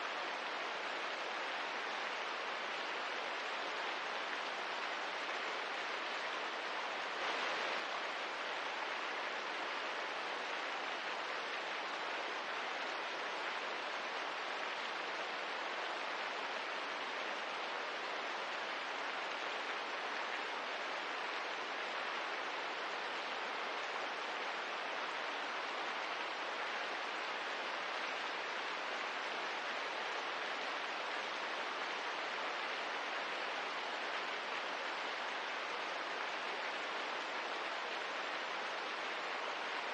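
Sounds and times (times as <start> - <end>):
rain hissing: 6.9 - 8.2.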